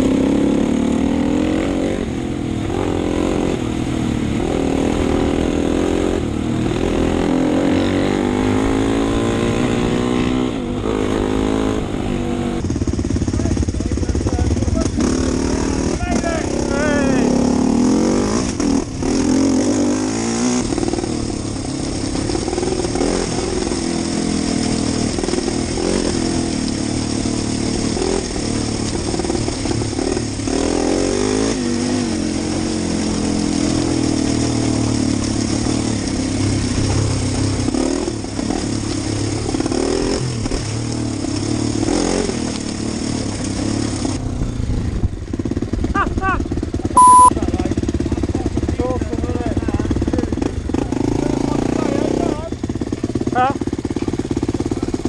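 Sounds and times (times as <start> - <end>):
motorbike engine revving: 0.0 - 55.0.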